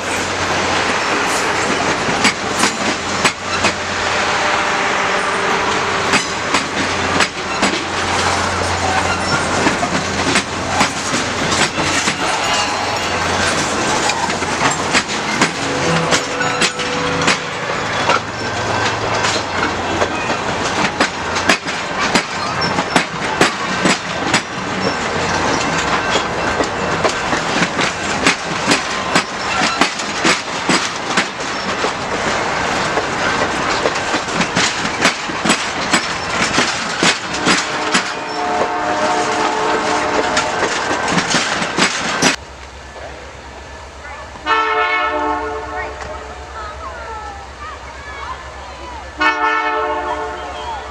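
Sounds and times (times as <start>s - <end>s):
wheels clicking over rail joints: 0.0s - 3.9s, 5.7s - 12.5s, 13.6s - 43.2s
train wheels rumbling on rail: 0.0s - 50.9s
train horn chord: 11.8s - 14.1s, 15.6s - 17.8s, 37.4s - 40.6s, 44.4s - 46.5s, 49.2s - 50.7s.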